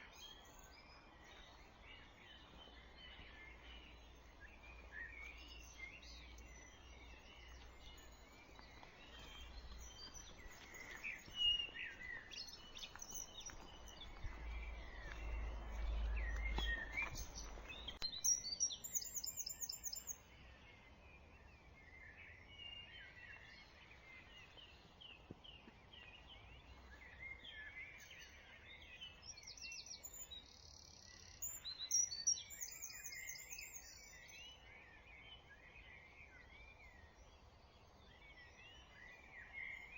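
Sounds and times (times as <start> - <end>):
songbirds singing: 0.0 - 39.9
low rumble: 13.4 - 18.0.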